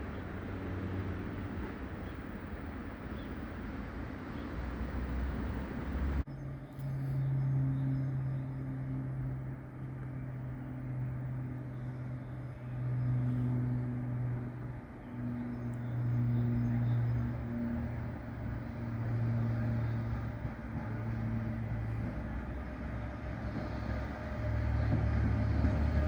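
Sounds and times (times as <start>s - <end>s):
low hum of a train: 0.0s - 26.0s
train rushing: 16.0s - 26.0s.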